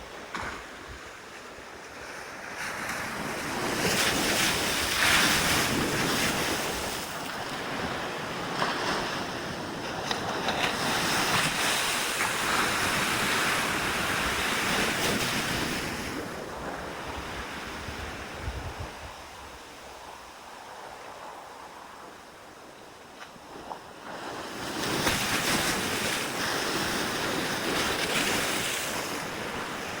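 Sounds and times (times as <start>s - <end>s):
sea waves breaking: 0.0s - 19.4s, 23.4s - 30.0s
wind buffeting microphone: 2.0s - 22.0s.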